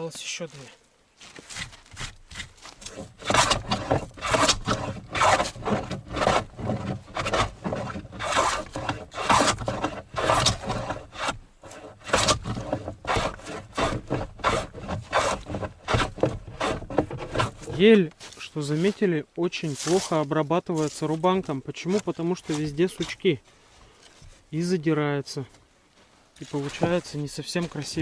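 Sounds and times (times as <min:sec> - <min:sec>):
hand plane scraping wood: 0:01.3 - 0:18.4, 0:20.8 - 0:23.2.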